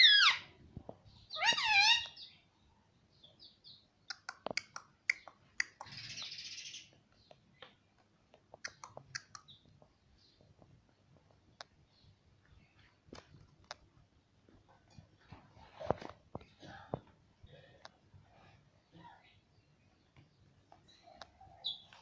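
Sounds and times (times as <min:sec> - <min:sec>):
parrot call with wavering pitch: 0:01.3 - 0:02.2
sharp clicks: 0:04.1 - 0:06.0.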